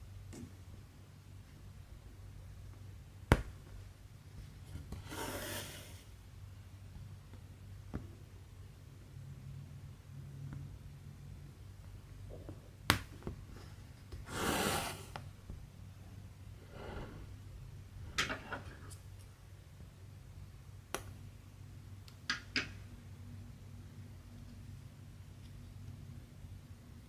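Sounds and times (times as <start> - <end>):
low steady hum: 15.0 - 27.0.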